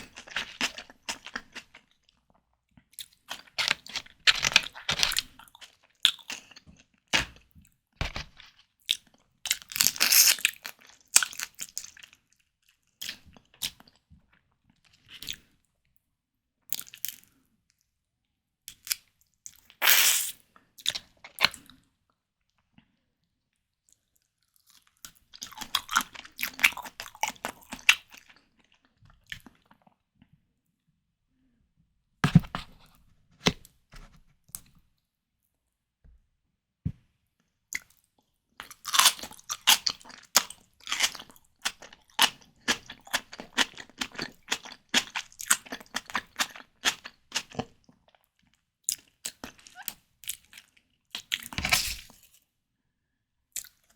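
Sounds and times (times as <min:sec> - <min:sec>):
person biting and chewing: 0:03.3 - 0:06.6, 0:09.5 - 0:12.0, 0:19.8 - 0:20.3, 0:25.4 - 0:28.4, 0:38.6 - 0:47.7, 0:51.2 - 0:52.3.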